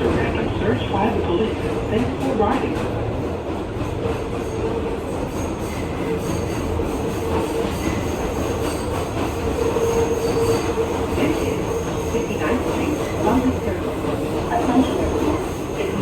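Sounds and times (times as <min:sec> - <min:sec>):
rumble of wheels on rail: 0:00.0 - 0:16.0.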